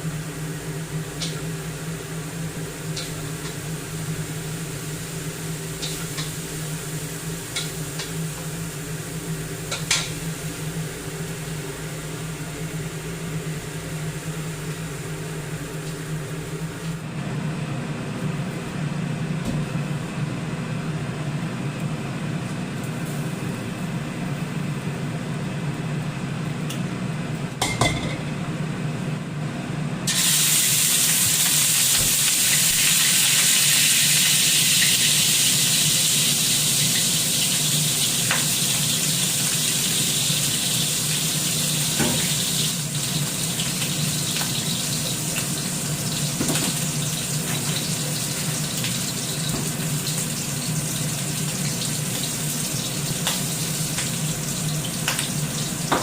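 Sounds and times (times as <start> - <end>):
loud sizzle in hot oil: 0.0 - 16.8, 30.1 - 56.0
food frying in a pan: 0.0 - 17.0, 30.1 - 56.0
steady low hum: 0.0 - 30.1.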